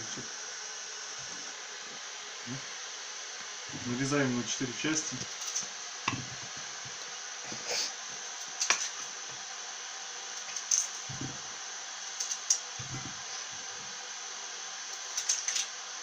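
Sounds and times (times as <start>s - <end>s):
steady hiss: 0.0s - 16.0s
dull thuds: 11.1s - 11.5s.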